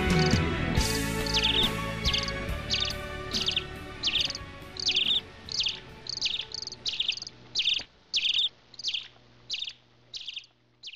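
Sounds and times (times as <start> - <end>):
music: 0.0 - 7.8
bird chirping: 0.0 - 10.9.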